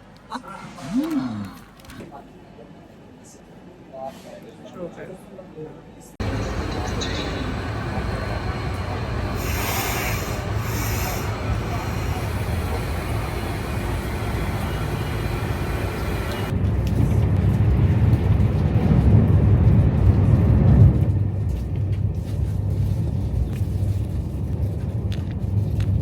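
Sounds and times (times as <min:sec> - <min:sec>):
moving vehicle rumble: 0:06.2 - 0:26.0.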